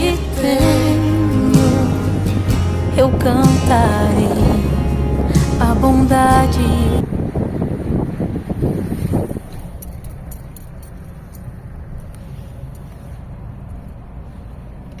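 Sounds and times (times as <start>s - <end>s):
car road rumble: 0.0s - 15.0s.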